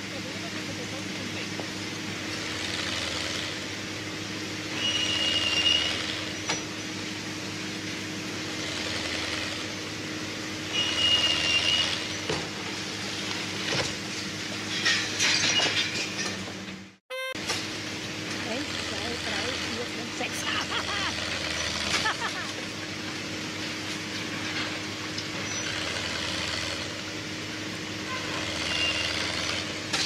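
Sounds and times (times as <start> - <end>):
heavy machinery engine hum: 0.0 - 15.2, 17.6 - 30.0
brief high squeal: 4.8 - 6.0, 10.7 - 11.9, 17.1 - 17.4.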